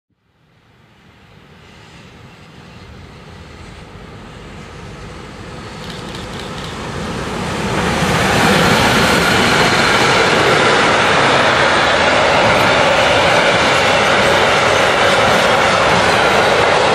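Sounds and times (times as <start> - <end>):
train wheels on rails: 0.6 - 16.9.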